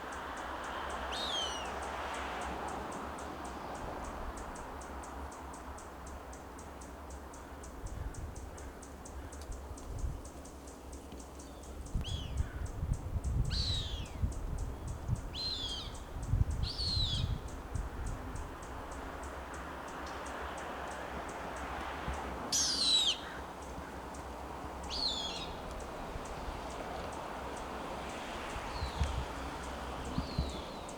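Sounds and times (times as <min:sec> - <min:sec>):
hawks whistled calls: 0:22.5 - 0:23.4.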